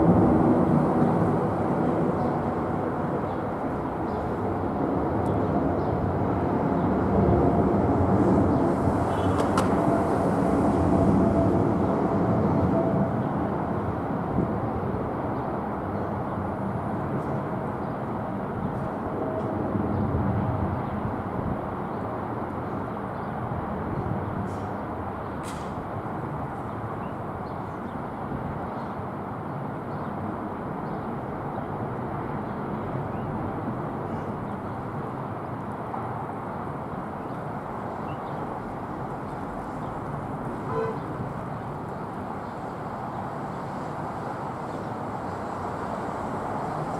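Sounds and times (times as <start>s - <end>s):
jet engines at takeoff power: 0.0s - 46.9s.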